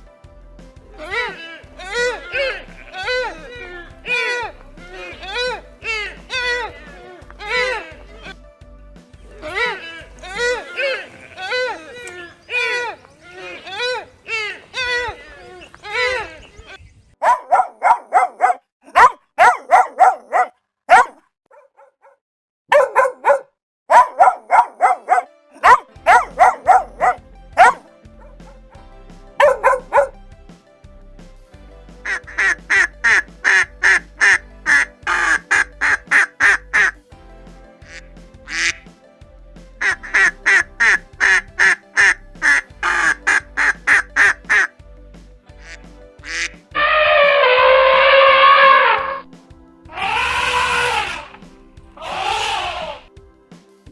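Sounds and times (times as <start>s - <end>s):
small dog barking: 17.2s - 28.6s, 29.4s - 30.1s
duck quacking: 32.1s - 36.9s, 39.8s - 44.7s, 52.0s - 53.1s.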